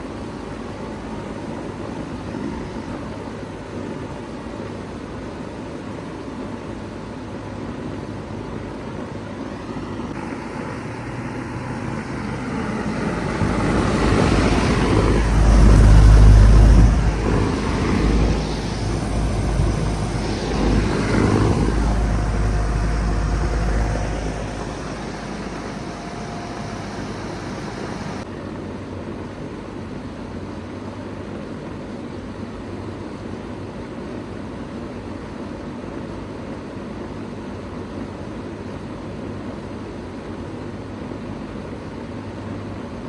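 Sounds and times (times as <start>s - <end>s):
heat pump whooshing: 6.9s - 28.3s
vehicle passing by: 10.2s - 28.2s.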